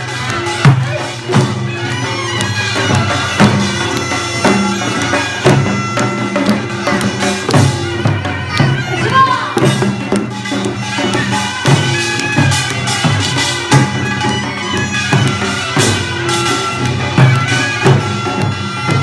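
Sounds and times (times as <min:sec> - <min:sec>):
drum strokes: 0:00.0 - 0:19.0
reedy wind instrument melody: 0:00.0 - 0:19.0.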